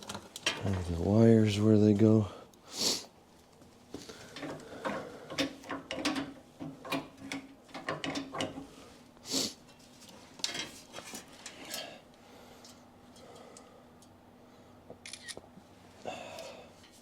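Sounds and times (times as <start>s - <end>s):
light clicks and clinks of parts: 0.0s - 0.9s, 4.3s - 8.7s, 12.6s - 14.2s.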